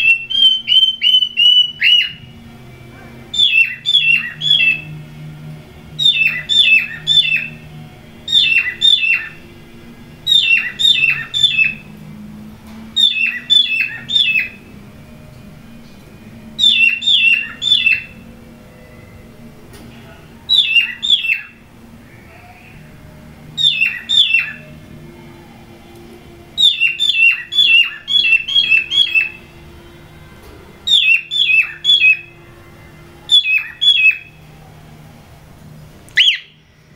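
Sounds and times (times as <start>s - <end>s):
bird chirping: 0.0s - 2.4s, 3.3s - 5.0s, 5.9s - 9.6s, 10.2s - 12.0s, 13.0s - 14.7s, 16.6s - 18.3s, 20.5s - 21.6s, 23.6s - 24.8s, 26.6s - 29.5s, 30.9s - 32.4s, 33.3s - 34.3s, 36.1s - 36.6s
faint low hum: 0.0s - 36.9s.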